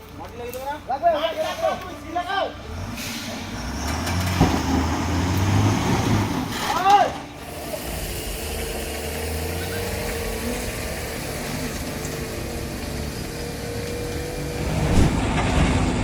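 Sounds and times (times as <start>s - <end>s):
truck engine droning: 7.4s - 16.0s.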